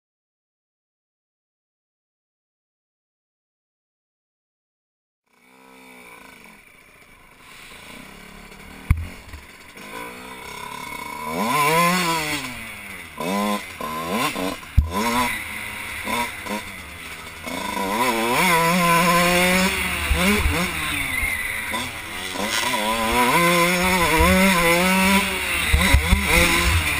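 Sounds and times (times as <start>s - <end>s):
motorcycle engine revving: 5.3s - 26.9s
sharp knocks: 8.9s - 9.4s, 14.8s - 15.0s.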